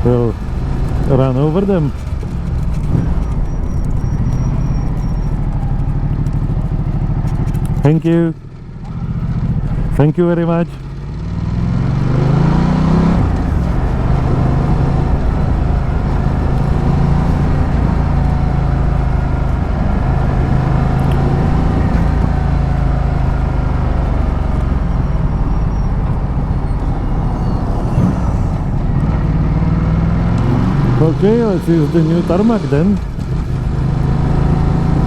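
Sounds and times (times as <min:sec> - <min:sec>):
wind rumble on microphone: 0:00.0 - 0:07.8, 0:11.9 - 0:31.6
motorcycle engine revving: 0:00.0 - 0:35.0.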